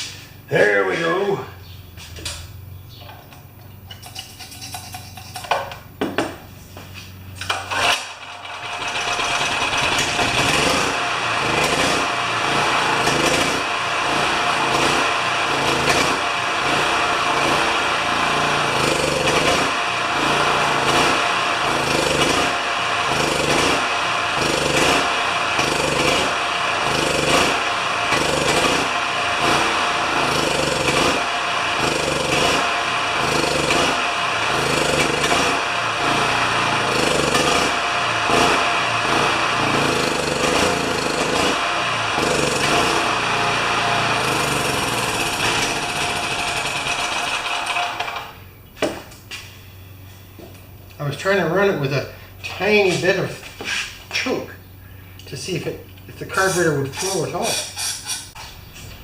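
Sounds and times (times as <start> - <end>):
generator engine surging: 7.4 - 48.5.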